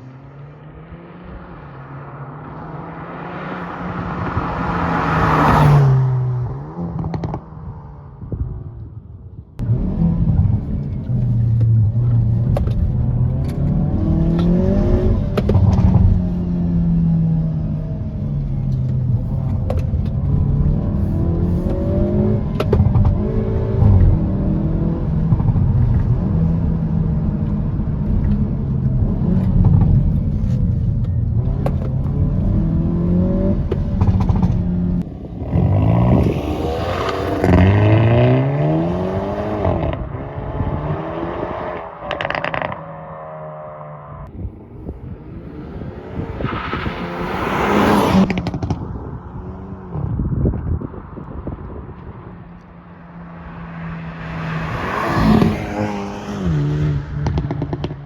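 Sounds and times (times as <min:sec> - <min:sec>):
exhaust pops and crackles: 0:06.9 - 0:07.5, 0:15.2 - 0:16.3, 0:22.5 - 0:23.2, 0:25.2 - 0:26.2, 0:27.5 - 0:32.2, 0:33.6 - 0:35.0, 0:48.2 - 0:49.2, 0:57.2 - 0:58.0
car engine revving: 0:09.6 - 0:50.2, 0:51.7 - 0:58.0.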